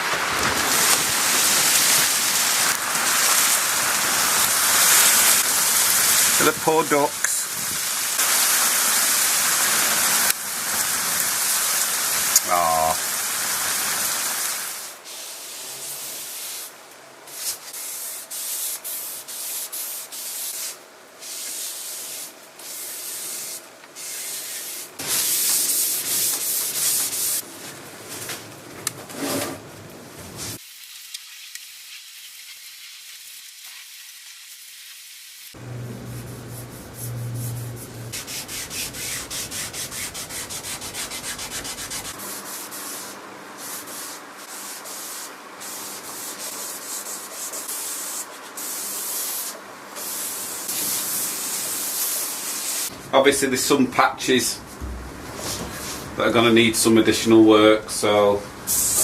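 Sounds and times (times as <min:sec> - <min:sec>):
steady hiss: 0:00.0 - 0:28.5, 0:30.2 - 0:59.0
hand rubbing wooden surface: 0:35.6 - 0:42.1.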